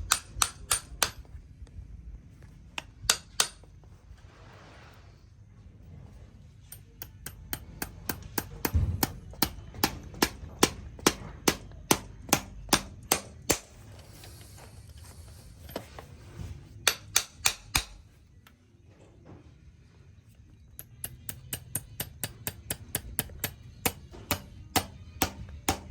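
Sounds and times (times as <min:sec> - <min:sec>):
hammer striking metal: 0:02.8 - 0:03.7, 0:06.7 - 0:13.7, 0:16.8 - 0:18.0, 0:20.8 - 0:25.9.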